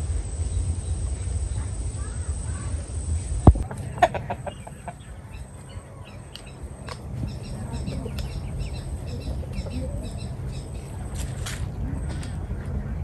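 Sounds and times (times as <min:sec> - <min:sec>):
low background rumble: 0:00.0 - 0:13.0
small bird chirping: 0:00.5 - 0:11.4.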